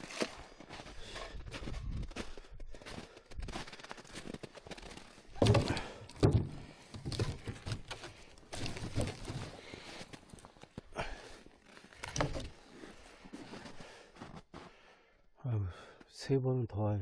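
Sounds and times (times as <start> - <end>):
firewood knocks and rustling: 5.3 - 10.7, 12.0 - 12.6.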